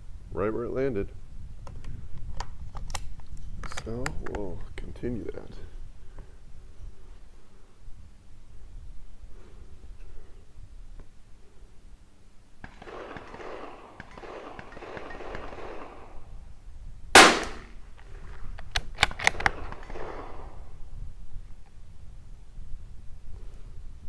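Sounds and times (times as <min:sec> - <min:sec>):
rifle shot: 0:12.6 - 0:16.3, 0:17.2 - 0:17.8
rifle bolt metallic clicks: 0:17.2 - 0:17.8, 0:18.6 - 0:20.0.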